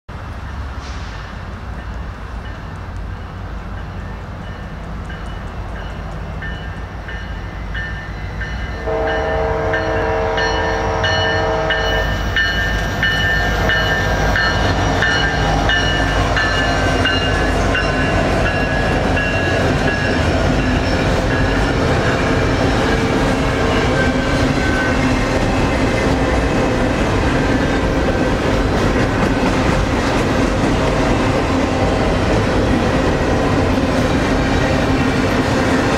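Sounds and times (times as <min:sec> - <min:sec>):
diesel locomotive passing: 0:00.1 - 0:35.9
train wheel clatter and rumble: 0:00.2 - 0:08.9, 0:11.0 - 0:35.9
locomotive horn blast: 0:08.8 - 0:12.4.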